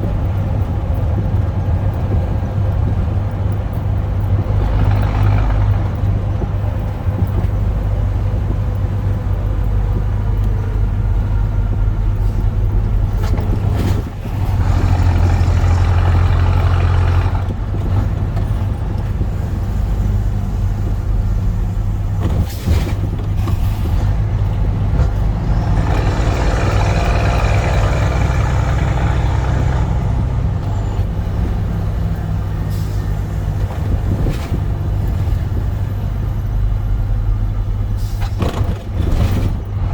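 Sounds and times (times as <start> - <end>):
truck diesel engine drone: 0.0 - 39.9.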